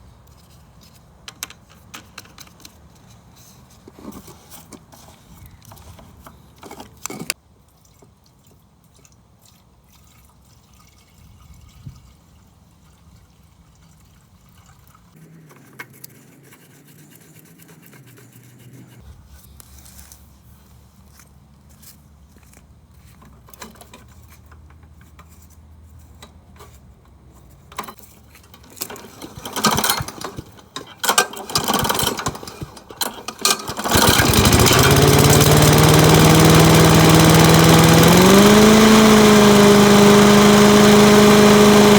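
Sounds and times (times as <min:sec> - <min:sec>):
clicks and rustling of tools: 0:00.2 - 0:07.4, 0:22.4 - 0:35.6.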